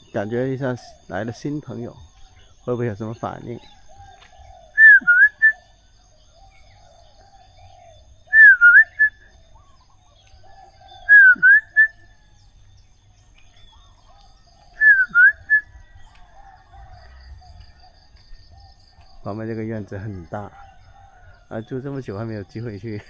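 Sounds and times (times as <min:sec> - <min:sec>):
soft bird chirping: 0:00.0 - 0:23.0
loud whistled bird phrase: 0:04.8 - 0:05.6, 0:08.3 - 0:09.3, 0:11.0 - 0:12.1, 0:14.8 - 0:15.9.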